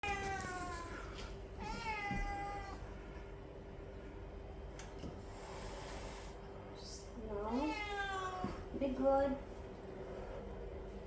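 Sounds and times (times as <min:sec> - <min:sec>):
cat meowing: 0:01.6 - 0:02.8, 0:07.5 - 0:08.6.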